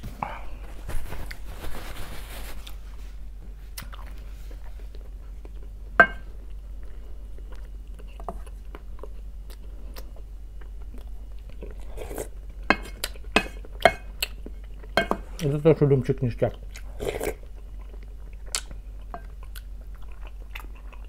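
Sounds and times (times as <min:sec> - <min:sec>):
person chewing fish: 0:03.8 - 0:05.8, 0:06.4 - 0:15.5, 0:16.4 - 0:21.0
spoon knocking against bowl: 0:06.0 - 0:06.2.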